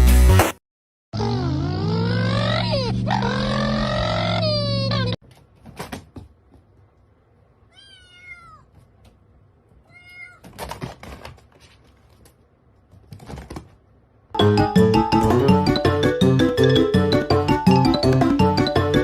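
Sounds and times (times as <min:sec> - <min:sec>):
cat meowing: 0:07.7 - 0:08.8, 0:09.8 - 0:10.5.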